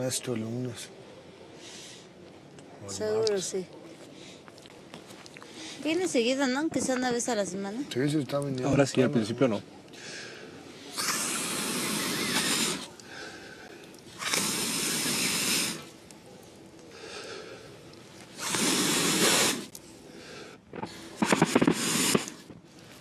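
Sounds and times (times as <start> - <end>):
breath-like blowing blasts: 10.0 - 16.0, 16.9 - 22.5.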